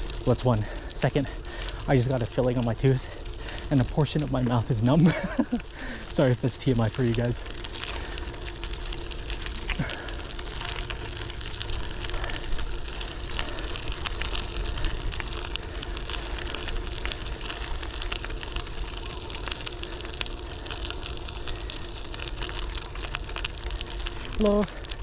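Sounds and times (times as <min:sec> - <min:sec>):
bike clicks and rattles: 0:00.0 - 0:25.0
bike tyres rolling on pavement: 0:00.0 - 0:25.0.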